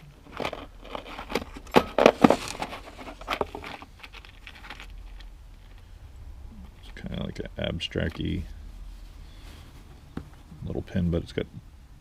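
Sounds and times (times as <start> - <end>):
bags rustling: 0.0 - 5.9.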